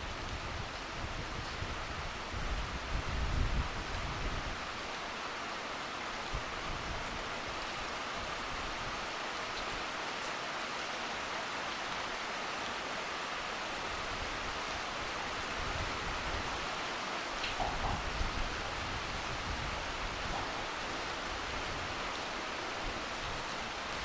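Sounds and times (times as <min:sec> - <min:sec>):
steady rain hiss: 0:00.0 - 0:24.0
wind buffeting microphone: 0:00.1 - 0:04.7, 0:17.5 - 0:22.1.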